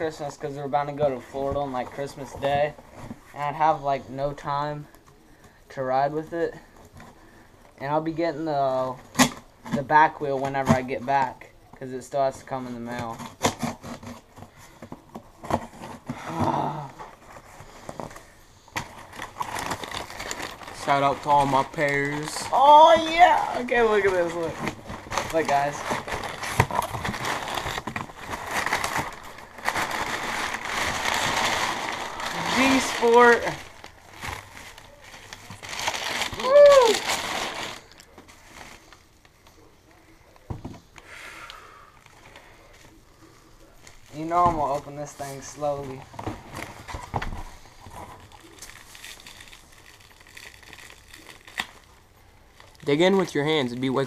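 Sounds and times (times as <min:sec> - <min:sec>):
packaging rustling and crinkling: 0:12.8 - 0:41.0, 0:41.9 - 0:54.0.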